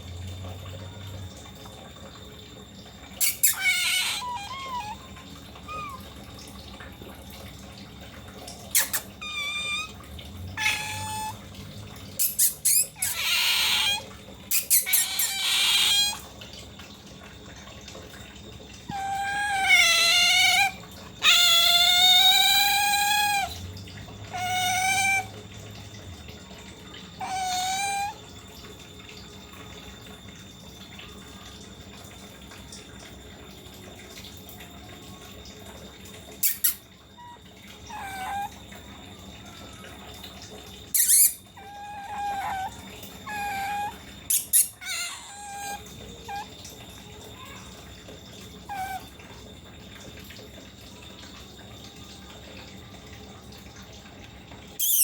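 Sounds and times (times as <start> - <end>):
otter squealing: 3.1 - 6.2, 8.7 - 11.5, 12.2 - 16.3, 18.8 - 23.6, 24.3 - 25.4, 27.2 - 28.2, 36.4 - 38.7, 40.9 - 47.7, 48.6 - 49.2, 54.8 - 55.0.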